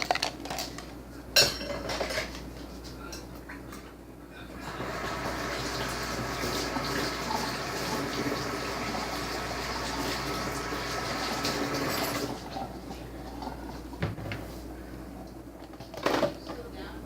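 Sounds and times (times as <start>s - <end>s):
water running: 4.5s - 14.0s.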